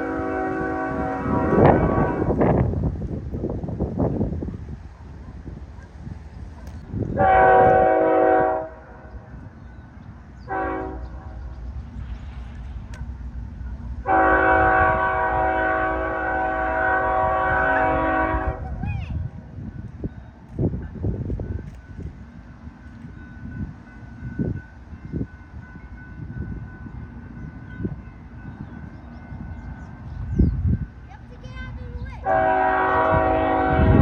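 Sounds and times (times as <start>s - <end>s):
locomotive air horn blasts: 0.0s - 2.6s, 7.2s - 9.1s, 10.4s - 11.4s, 14.0s - 18.6s, 32.2s - 34.0s
train rumbling past: 0.0s - 34.0s.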